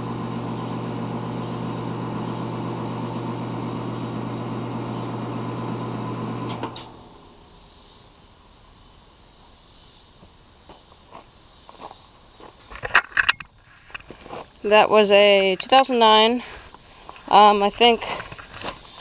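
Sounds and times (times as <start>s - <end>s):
heat pump humming: 0.0s - 7.5s
crickets chirping: 6.7s - 19.0s.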